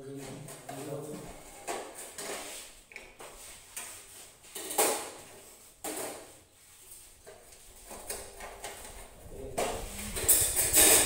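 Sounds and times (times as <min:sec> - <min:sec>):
metal knocks and scrapes: 0:07.2 - 0:11.0.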